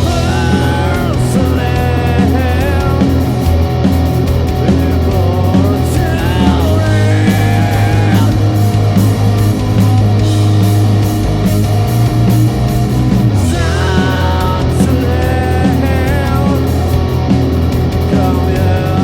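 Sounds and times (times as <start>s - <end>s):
bass guitar: 0.0s - 19.0s
drums keeping a steady beat: 0.0s - 19.0s
electric guitars: 0.0s - 19.0s.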